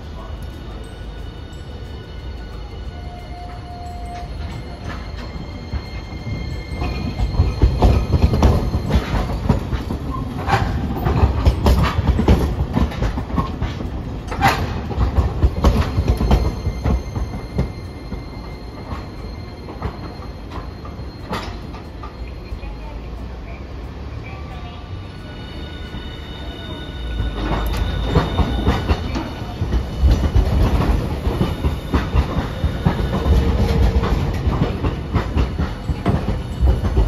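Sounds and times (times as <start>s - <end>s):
tram wheels rumbling and clicking: 0.0s - 37.0s
wheel flange squeals: 15.6s - 22.4s, 24.9s - 34.8s.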